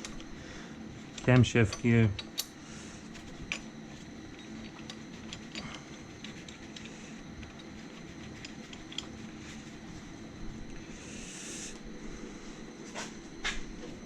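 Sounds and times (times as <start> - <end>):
steady low hum: 0.0 - 14.0
metallic clicks of hand tools: 1.2 - 2.6.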